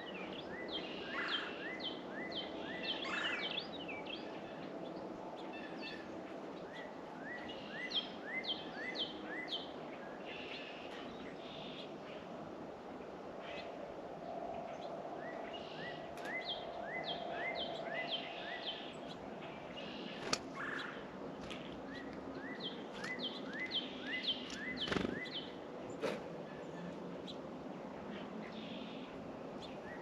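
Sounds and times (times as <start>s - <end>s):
songbird chirping: 0.0s - 12.5s, 13.2s - 30.0s.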